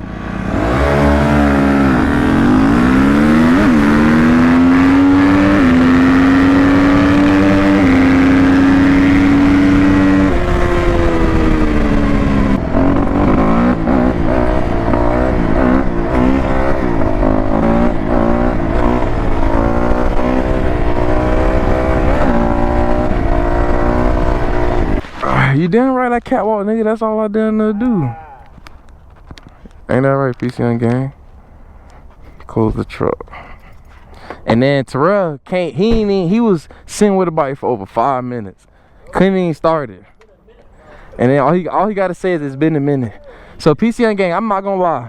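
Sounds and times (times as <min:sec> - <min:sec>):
dirt bike engine accelerating: 0:00.0 - 0:25.7.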